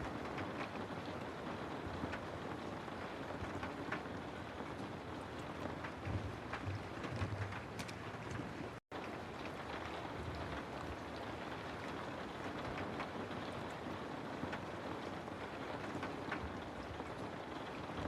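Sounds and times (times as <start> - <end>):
rain on a house: 0.0 - 18.0
raindrop ticks: 0.0 - 18.0.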